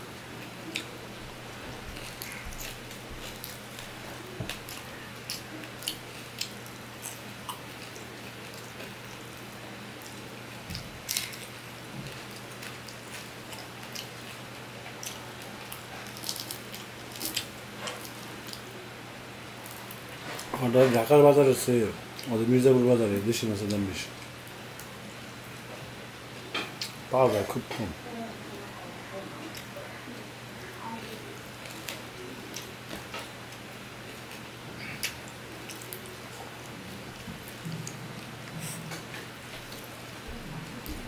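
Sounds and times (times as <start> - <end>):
person chewing and mouth smacks: 0.4 - 0.9, 1.7 - 9.2, 10.0 - 18.6, 31.6 - 41.0.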